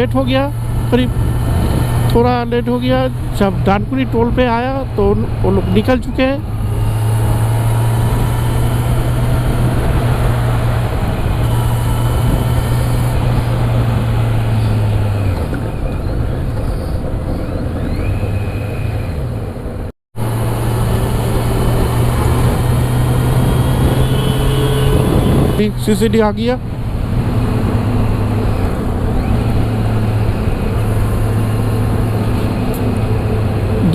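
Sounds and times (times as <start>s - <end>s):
motorcycle engine running: 0.0s - 33.9s
road noise: 0.0s - 33.9s
wind noise on microphone: 0.6s - 2.4s, 6.5s - 19.9s, 21.2s - 25.7s.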